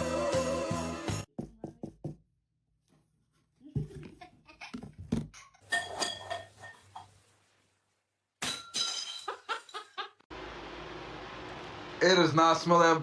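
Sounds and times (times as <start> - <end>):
glass dishes clinking: 5.6 - 7.2.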